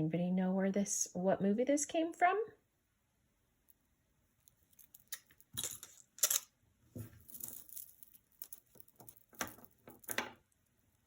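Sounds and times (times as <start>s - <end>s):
jewelry clicking: 4.4s - 6.5s.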